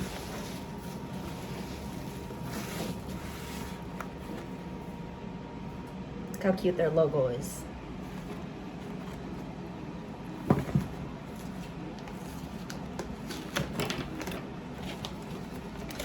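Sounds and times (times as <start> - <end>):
low room hum: 0.0 - 16.0
package being handled and opened: 10.8 - 16.0.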